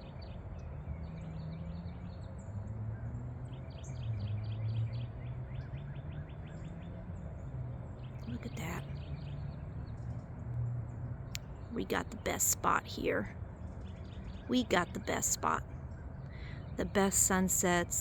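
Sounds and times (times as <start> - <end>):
songbirds chirping: 0.0 - 18.0
low background hum: 8.1 - 9.3, 9.9 - 18.0.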